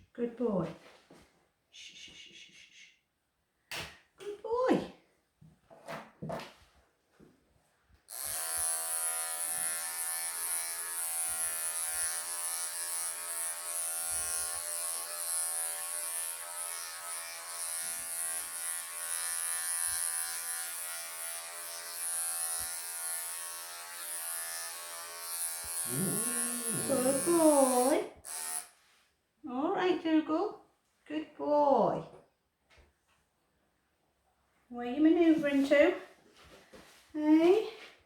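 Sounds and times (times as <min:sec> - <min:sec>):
clippers buzzing: 0:08.1 - 0:28.8
electric clippers switching on: 0:08.1 - 0:28.8.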